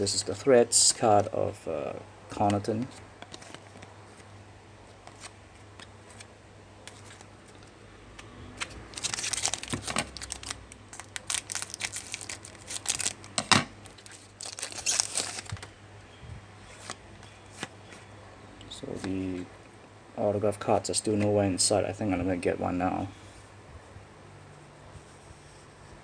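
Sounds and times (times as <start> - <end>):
wrapper tearing and crinkling: 8.9 - 15.7.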